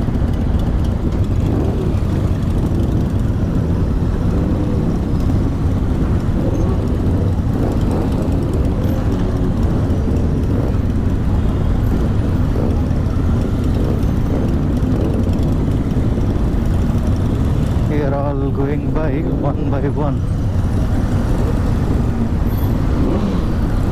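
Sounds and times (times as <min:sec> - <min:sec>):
motorcycle engine running: 0:00.0 - 0:23.9
wind rumble on microphone: 0:00.0 - 0:23.9.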